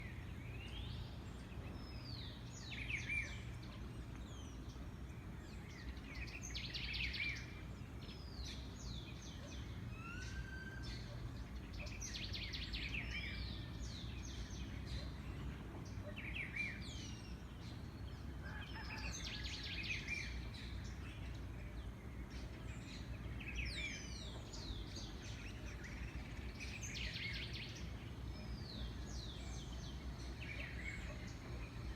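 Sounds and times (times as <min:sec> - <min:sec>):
songbirds whistling: 0:08.2 - 0:18.0.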